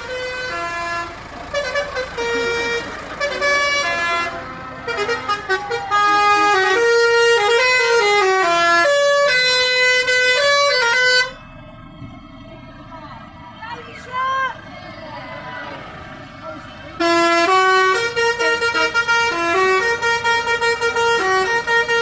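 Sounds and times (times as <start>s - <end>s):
musical vehicle horn: 0.0s - 11.4s, 16.9s - 22.0s.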